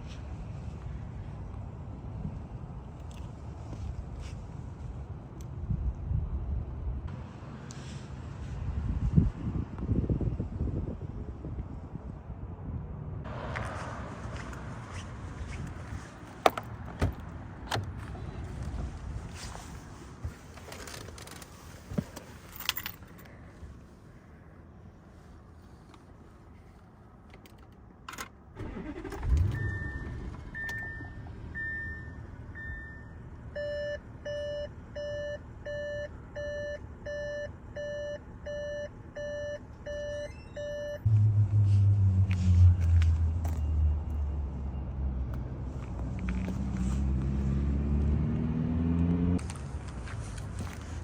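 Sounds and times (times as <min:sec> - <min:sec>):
dashboard warning chime: 0:29.5 - 0:41.1.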